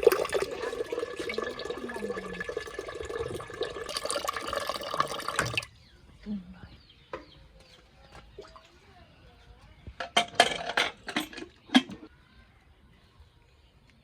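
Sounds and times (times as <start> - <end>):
metal utensils and dishes clinking: 10.0 - 12.1.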